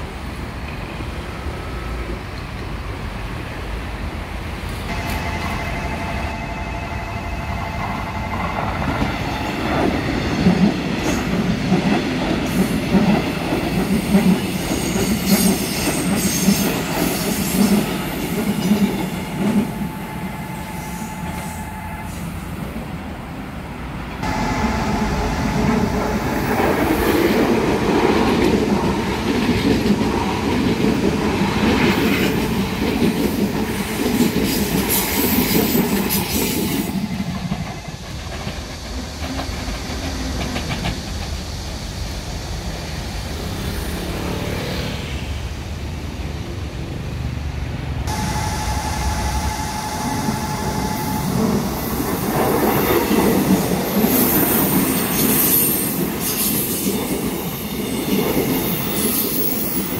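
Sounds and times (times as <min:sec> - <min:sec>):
train wheels rumbling: 0:00.0 - 0:59.9
crossing warning bell ringing: 0:04.9 - 0:09.6, 0:18.3 - 0:22.9, 0:24.2 - 0:26.8, 0:48.1 - 0:56.2
train clattering over rail joints: 0:24.2 - 0:41.6.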